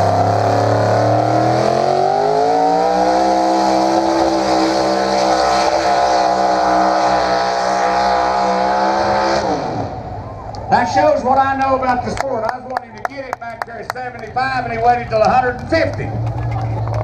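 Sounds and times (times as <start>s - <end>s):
truck engine revving under load: 0.0s - 10.2s.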